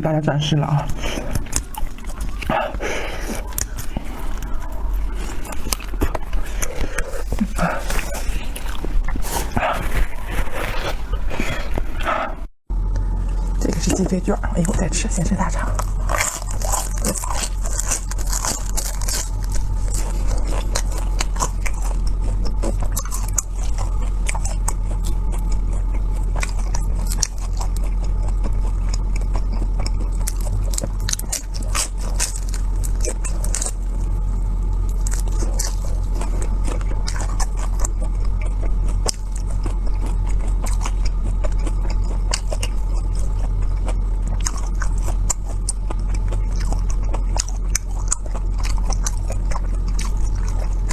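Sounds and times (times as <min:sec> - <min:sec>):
crunchy wet chewing: 0:00.0 - 0:50.9.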